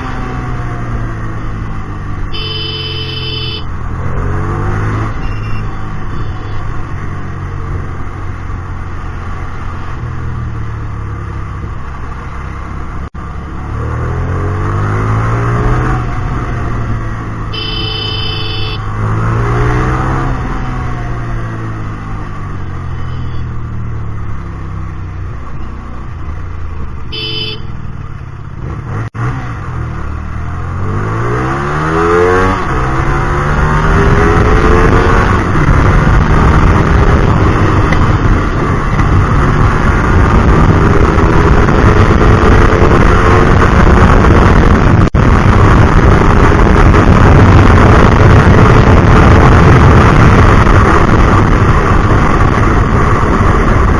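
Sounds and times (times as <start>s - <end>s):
motorcycle engine revving: 0.0s - 53.9s
high beep or horn: 2.3s - 3.7s, 5.1s - 6.7s, 17.5s - 18.9s, 22.9s - 23.5s, 27.1s - 27.8s
wind rush: 30.8s - 53.9s.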